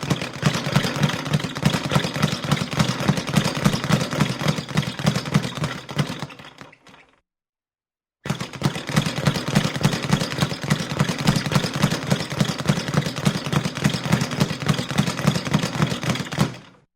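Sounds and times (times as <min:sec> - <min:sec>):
boxing punches landing: 0:00.0 - 0:06.4.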